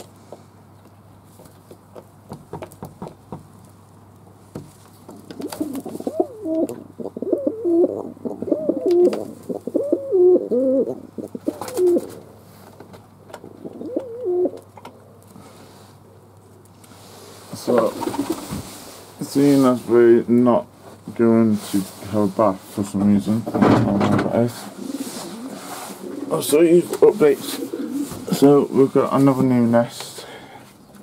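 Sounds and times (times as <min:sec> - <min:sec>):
pigeons cooing: 0:05.2 - 0:12.3, 0:13.4 - 0:14.7, 0:17.8 - 0:18.5, 0:24.7 - 0:28.8.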